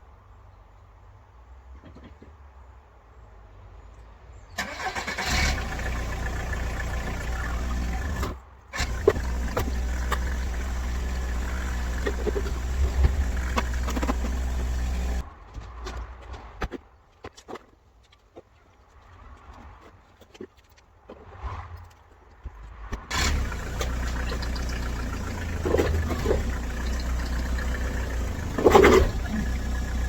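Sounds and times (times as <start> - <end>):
diesel engine starting and running: 4.6 - 15.3, 23.1 - 30.0.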